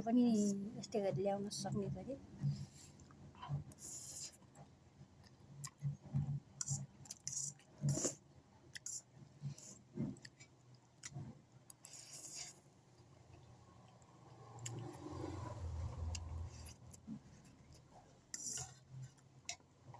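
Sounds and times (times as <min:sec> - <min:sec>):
person chewing noodles: 0:05.2 - 0:06.0, 0:06.6 - 0:14.0, 0:14.6 - 0:19.3.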